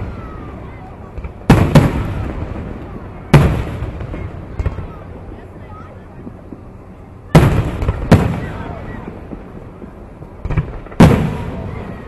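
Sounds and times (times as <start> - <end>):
fireworks booming: 0.0 - 12.0.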